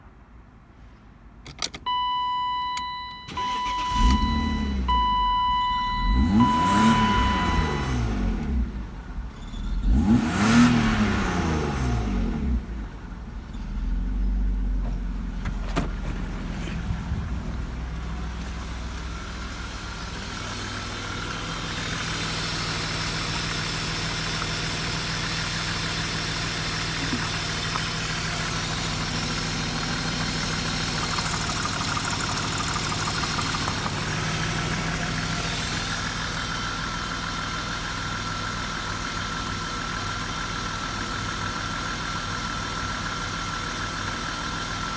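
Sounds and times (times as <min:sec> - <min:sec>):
car engine idling: 0:14.8 - 0:44.9.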